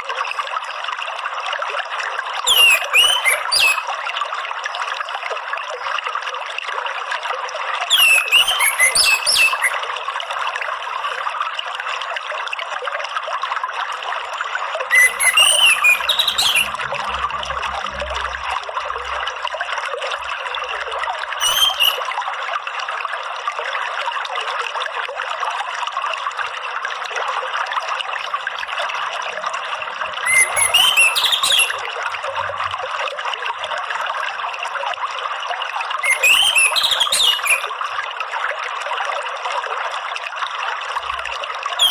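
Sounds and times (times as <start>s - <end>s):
water trickling: 0.0s - 41.9s
bird singing: 2.5s - 3.8s, 7.9s - 9.8s, 14.9s - 17.2s, 21.4s - 22.0s, 30.2s - 31.8s, 36.0s - 37.6s.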